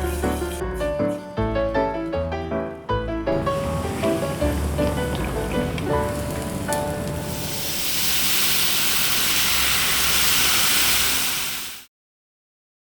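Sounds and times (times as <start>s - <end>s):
music notes: 0.0s - 7.7s
high hissing noise: 3.4s - 11.9s.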